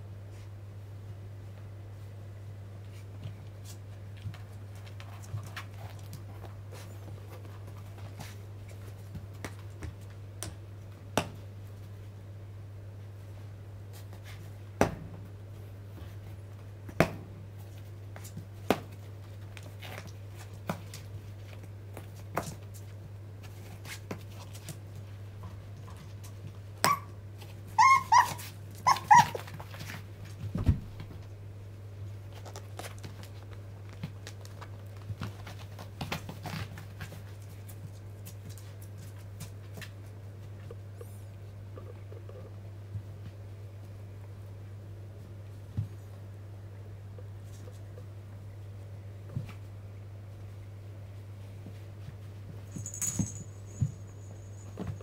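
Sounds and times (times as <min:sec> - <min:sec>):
puppy yips: 0:26.8 - 0:27.2, 0:27.8 - 0:29.5
steady low hum: 0:28.4 - 0:55.0.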